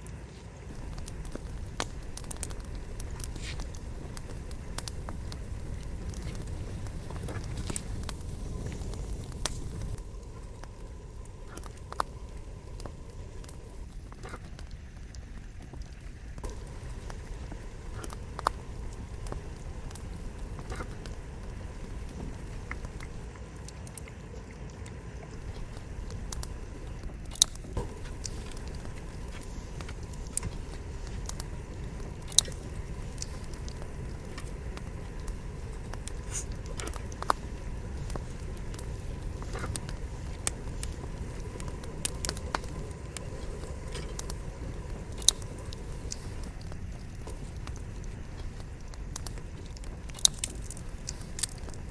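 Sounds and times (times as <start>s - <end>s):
campfire crackling: 0.0s - 51.9s
low rush of flame: 0.0s - 51.9s
sharp pops of burning wood: 0.0s - 51.9s.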